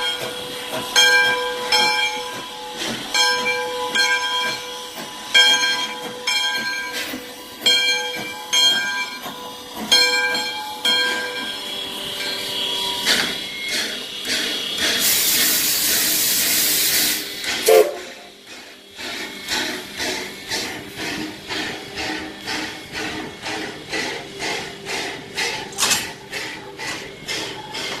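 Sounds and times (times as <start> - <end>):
steam venting hiss: 9.2 - 28.0
steam locomotive whistle blasts: 11.0 - 13.6, 15.0 - 18.4.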